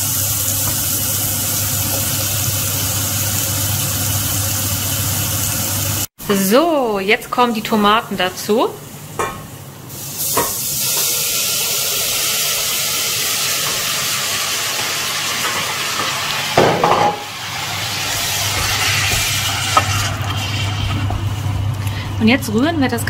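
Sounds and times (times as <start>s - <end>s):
tomatoes sizzling in hot oil: 0.0s - 6.1s, 8.4s - 21.8s.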